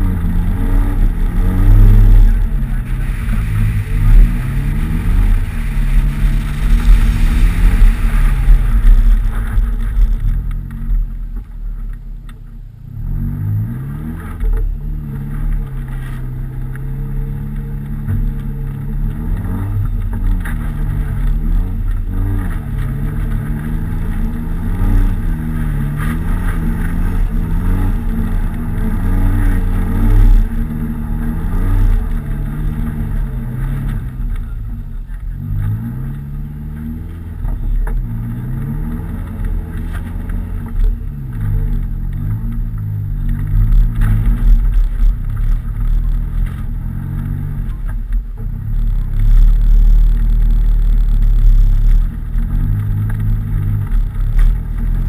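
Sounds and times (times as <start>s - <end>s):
rushing noise: 0.0s - 11.2s
car engine revving: 0.0s - 55.0s.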